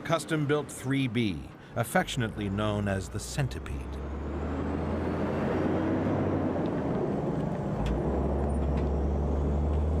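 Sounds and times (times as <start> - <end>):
road noise: 0.0 - 10.0
truck engine drone: 0.0 - 10.0.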